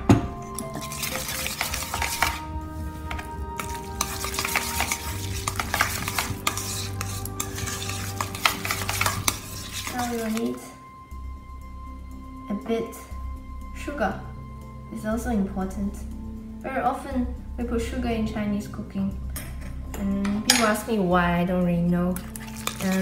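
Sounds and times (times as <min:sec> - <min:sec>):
wet sticky scraping of filling: 0:00.6 - 0:02.5, 0:03.1 - 0:10.6, 0:22.2 - 0:23.0.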